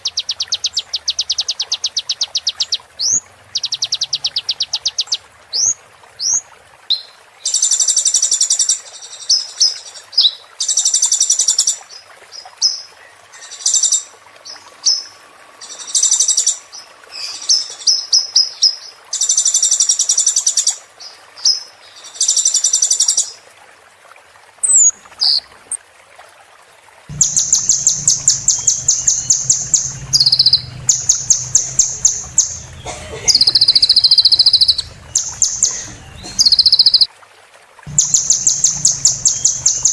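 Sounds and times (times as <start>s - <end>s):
bird trills and chirps: 0.0s - 11.8s, 12.6s - 20.8s, 27.1s - 37.1s, 37.9s - 39.9s
low background hum: 27.1s - 37.0s, 37.9s - 39.9s.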